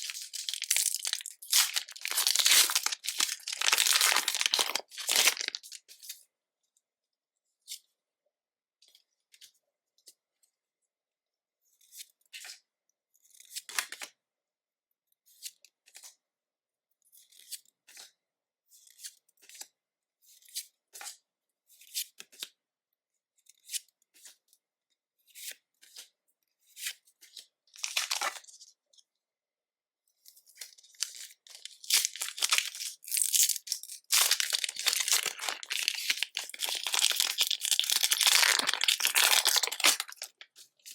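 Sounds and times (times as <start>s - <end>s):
foil crinkling and tearing: 0.0s - 5.8s, 27.8s - 28.4s, 30.9s - 40.5s
foil packs rustling: 0.0s - 5.8s, 31.0s - 40.4s.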